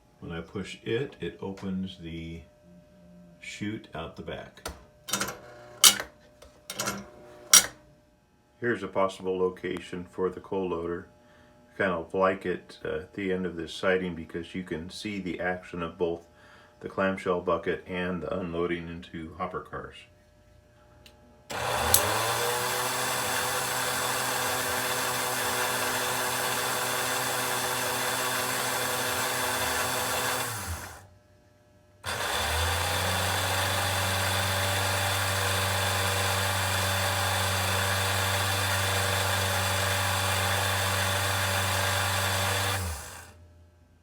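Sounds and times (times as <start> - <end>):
electric hoist motor humming: 4.6 - 7.8, 21.1 - 31.1, 32.0 - 43.4
sharp click: 4.7 - 7.8.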